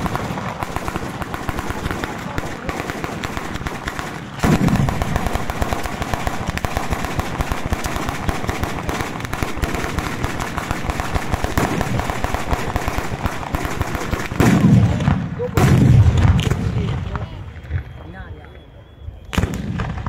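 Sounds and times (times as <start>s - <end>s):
rapid firecracker bangs: 0.0s - 18.0s, 19.3s - 20.0s
heavy firework boom: 1.8s - 6.8s, 14.2s - 18.0s.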